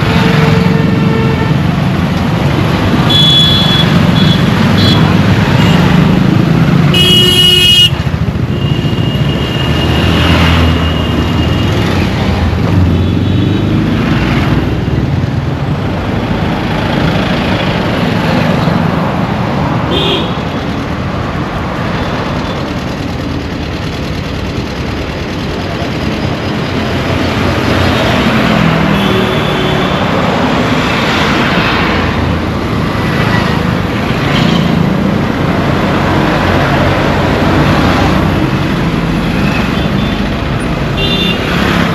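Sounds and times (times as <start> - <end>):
road traffic engines: 0.0 - 41.9
car horns honking: 3.0 - 5.9, 6.9 - 9.9, 28.8 - 30.1, 40.9 - 41.6.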